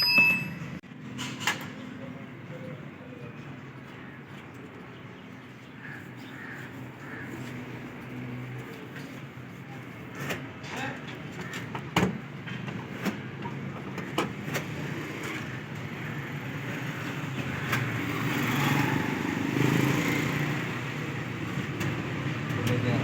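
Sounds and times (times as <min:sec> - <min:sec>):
road traffic hum: 0:00.0 - 0:23.0
vehicle passing: 0:14.8 - 0:21.6.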